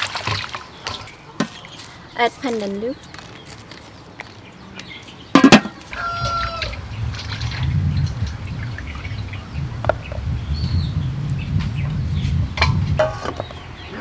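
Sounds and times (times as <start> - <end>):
birds chirping: 0.6 - 14.0
steady low rumble: 6.0 - 14.0.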